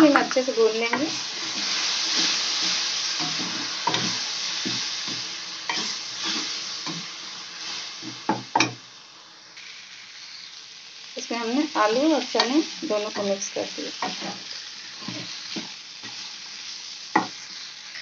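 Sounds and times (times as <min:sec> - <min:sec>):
tomato puree sizzling in oil: 0:00.0 - 0:18.0
spatula scraping and knocking pan: 0:00.2 - 0:07.1.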